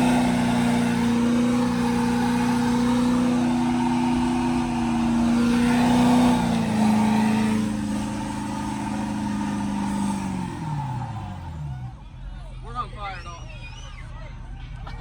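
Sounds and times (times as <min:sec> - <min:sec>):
truck engine at high revs: 0:00.0 - 0:15.0.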